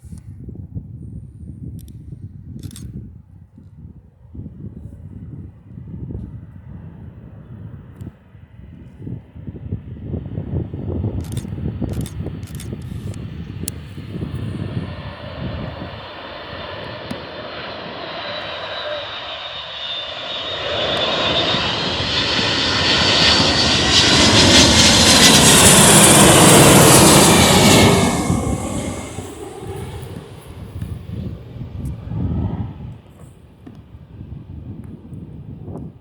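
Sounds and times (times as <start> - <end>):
jet airliner passing: 4.9 - 35.7
high engine whine: 11.3 - 33.2.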